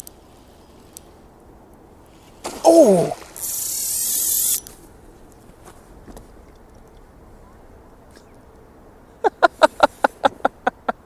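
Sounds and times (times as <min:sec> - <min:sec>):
man shouting: 0:02.6 - 0:03.2
fishing reel buzzing: 0:03.3 - 0:04.7.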